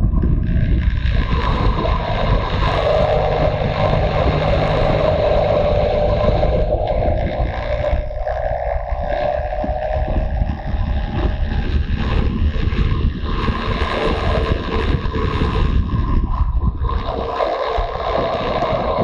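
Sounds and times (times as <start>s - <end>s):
motorcycle engine running: 0.0s - 19.0s
wind noise on microphone: 0.0s - 19.0s.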